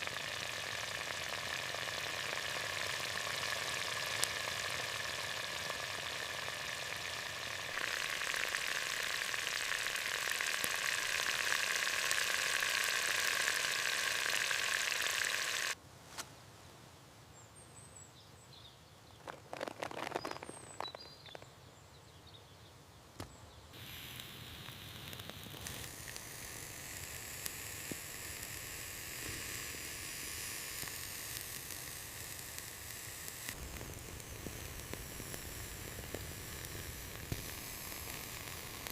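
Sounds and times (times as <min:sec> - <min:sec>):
food sizzling in a pan: 0:00.0 - 0:15.8, 0:23.8 - 0:38.9.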